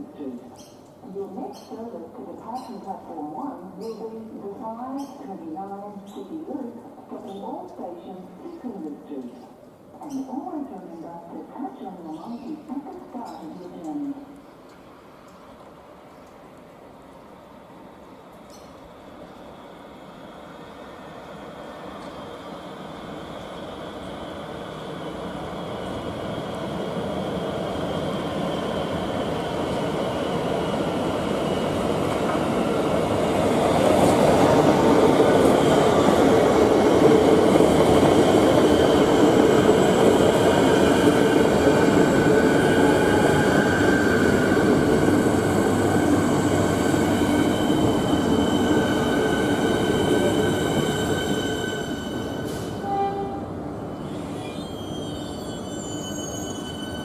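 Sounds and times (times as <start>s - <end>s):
train rumbling past: 14.3s - 57.0s.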